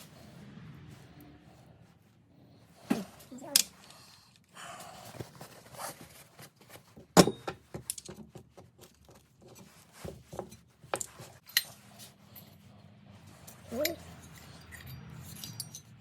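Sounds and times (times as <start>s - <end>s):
hand tools clicking and clinking: 2.9s - 4.5s, 7.1s - 12.6s, 13.2s - 16.0s.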